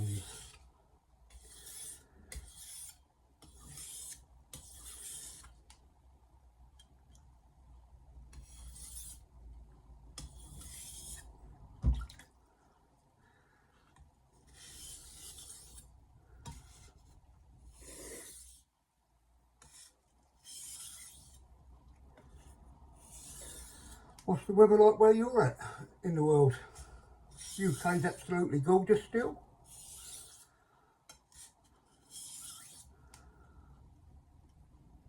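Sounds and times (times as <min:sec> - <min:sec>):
knife scraping on whetstone: 0:00.0 - 0:00.6, 0:01.3 - 0:05.5, 0:08.3 - 0:09.2, 0:10.2 - 0:11.3, 0:14.4 - 0:15.9, 0:17.7 - 0:18.6, 0:19.6 - 0:21.4, 0:23.0 - 0:24.1, 0:27.3 - 0:28.2, 0:29.6 - 0:30.5, 0:31.2 - 0:32.9.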